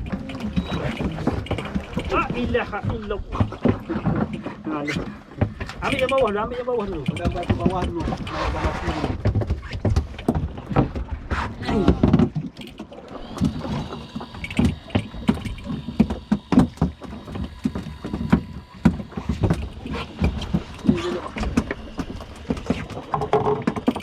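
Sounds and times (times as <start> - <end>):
knocks and thumps on boat: 0.0 - 24.0
low water wash: 0.0 - 24.0
faint high whine: 13.1 - 23.1.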